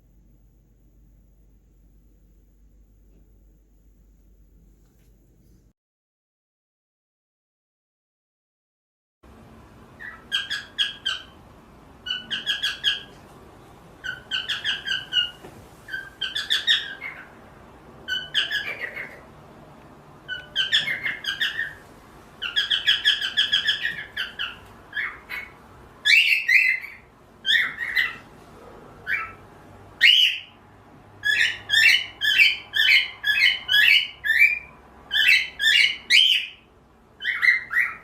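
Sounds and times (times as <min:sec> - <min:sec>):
harsh cockatiel call: 0:10.0 - 0:11.4, 0:12.0 - 0:13.2, 0:14.0 - 0:19.3, 0:20.2 - 0:21.8, 0:22.4 - 0:28.3, 0:29.0 - 0:30.6, 0:31.2 - 0:38.0
cockatiel whistling: 0:14.0 - 0:17.3, 0:18.1 - 0:19.2, 0:20.3 - 0:21.8, 0:22.4 - 0:28.2, 0:30.0 - 0:30.5, 0:31.2 - 0:36.6, 0:37.2 - 0:38.0.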